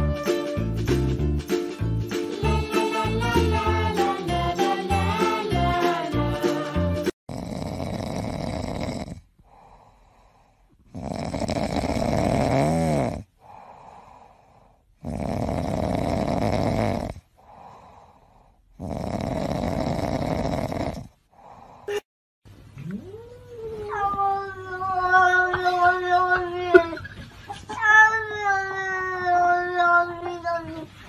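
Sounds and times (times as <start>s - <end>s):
cat snoring: 7.3s - 21.8s
cat breathing: 9.4s - 11.0s, 13.4s - 15.0s, 17.4s - 18.7s.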